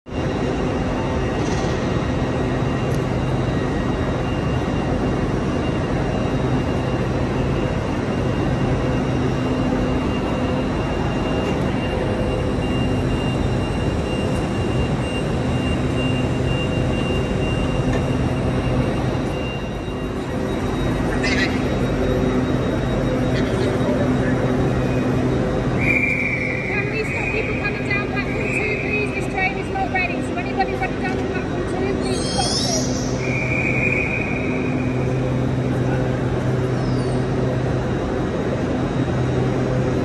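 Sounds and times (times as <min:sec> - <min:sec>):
stationary train humming: 0:00.1 - 0:40.0.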